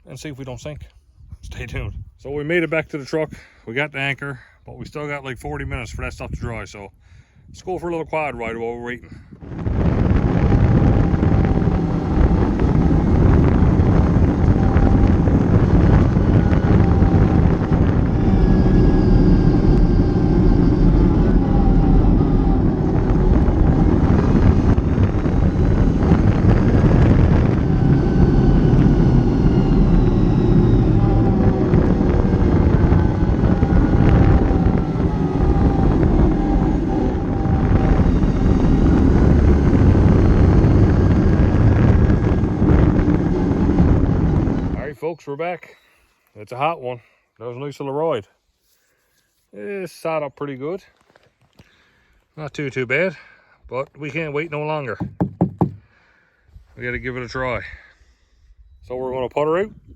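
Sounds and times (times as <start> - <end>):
quad engine running: 9.4 - 44.9.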